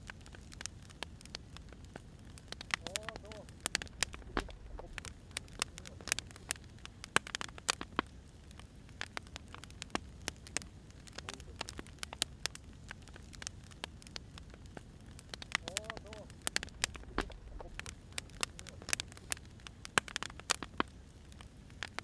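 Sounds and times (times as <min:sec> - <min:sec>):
wood fire crackling and popping: 0:00.0 - 0:22.0
low steady rumble: 0:01.2 - 0:07.1, 0:08.3 - 0:19.9.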